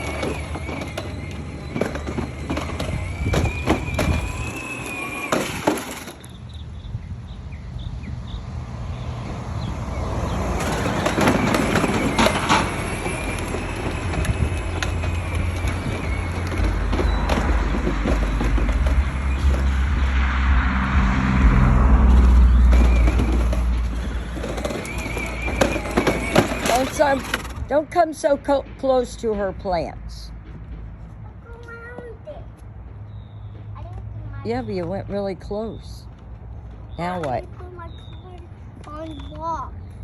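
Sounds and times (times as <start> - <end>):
knocks and rattles: 0.0 - 6.4, 10.6 - 20.6, 21.9 - 35.4
vehicle low rumble: 0.0 - 40.0.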